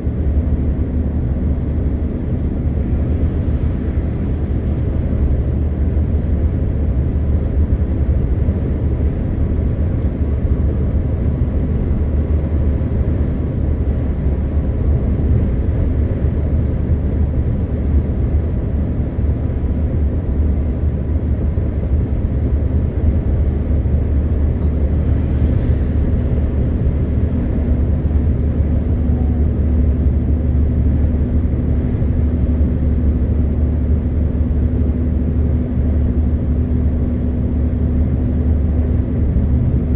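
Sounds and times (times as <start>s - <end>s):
road noise: 0.0s - 39.9s
truck diesel engine cruising: 0.0s - 39.9s.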